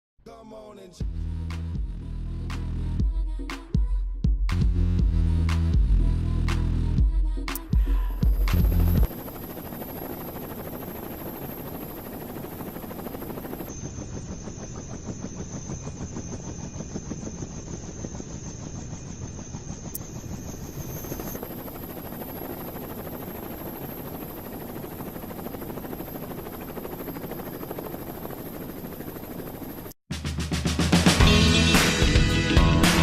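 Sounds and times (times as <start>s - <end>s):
helicopter rotor and engine: 7.6s - 30.0s.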